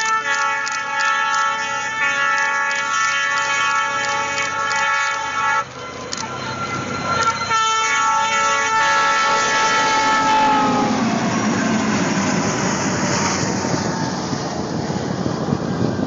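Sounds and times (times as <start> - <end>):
train horn: 0.0 - 12.2
train passing by: 0.0 - 16.0.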